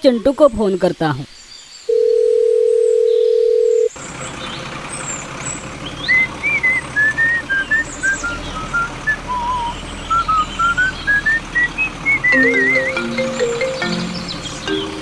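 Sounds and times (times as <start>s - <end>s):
background hiss: 0.0s - 2.3s
phone tone: 1.9s - 3.9s, 12.3s - 14.0s
whistled tune: 6.1s - 15.0s.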